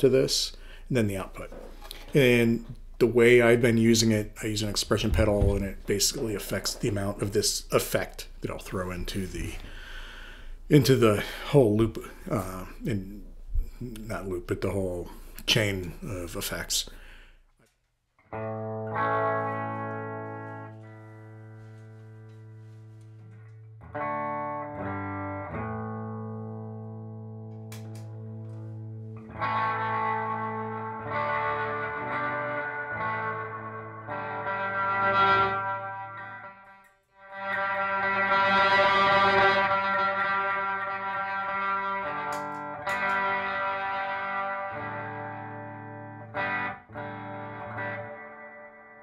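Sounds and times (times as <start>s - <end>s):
electric guitar chords with reverb: 18.2s - 49.0s.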